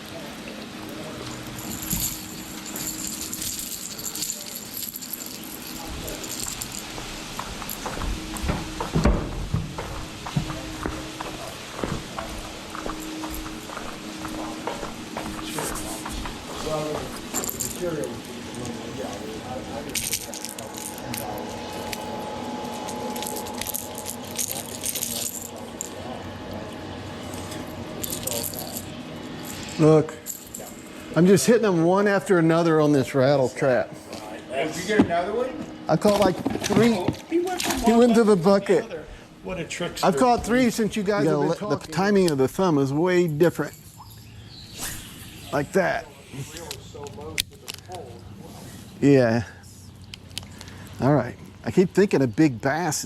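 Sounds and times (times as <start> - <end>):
low steady hum: 0.0 - 53.0
small hard objects rattling: 1.6 - 6.9
dull knocks: 7.9 - 11.0.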